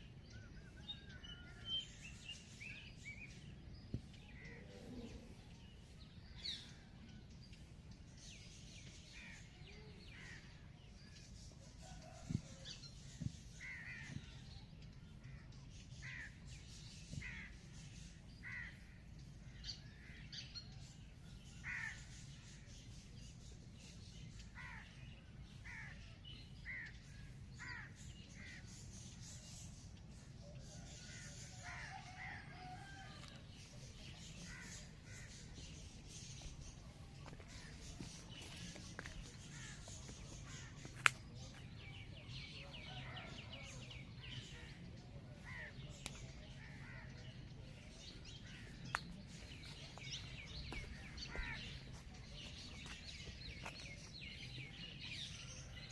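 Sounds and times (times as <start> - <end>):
birds calling: 24.4 - 30.1, 30.7 - 55.9.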